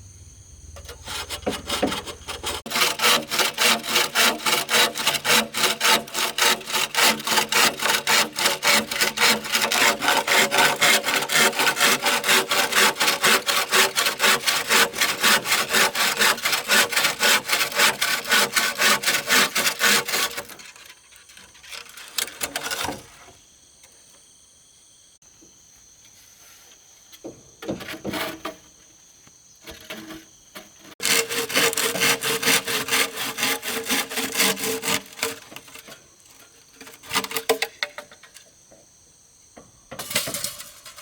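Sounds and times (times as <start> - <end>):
hand saw cutting wood: 0.8 - 23.3, 27.7 - 28.6, 29.7 - 38.2.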